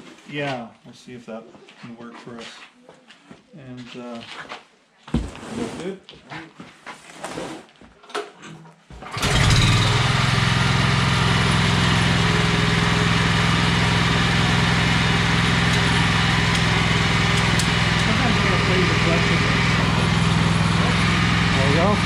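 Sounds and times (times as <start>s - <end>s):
small tractor engine running: 9.0s - 22.0s.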